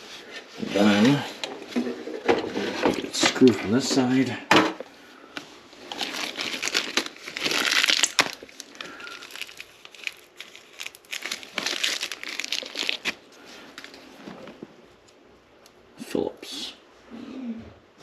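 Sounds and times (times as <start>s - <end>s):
crinkling scraping handling noise: 0.0s - 4.3s, 5.3s - 15.2s.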